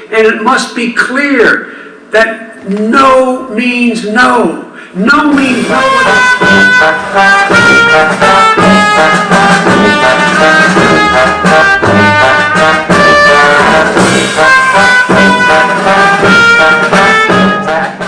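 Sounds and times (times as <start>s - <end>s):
brass music with trumpet and trombone: 5.4s - 18.0s.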